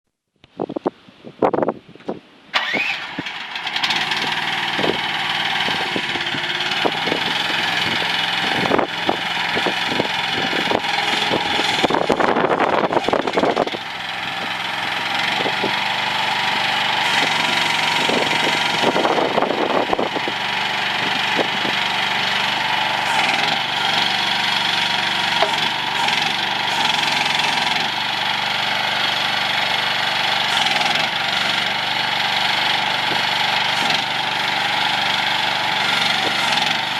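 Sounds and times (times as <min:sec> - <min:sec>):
diesel engine running: 0:02.5 - 0:36.9
sharp clanks and knocks: 0:25.1 - 0:27.9.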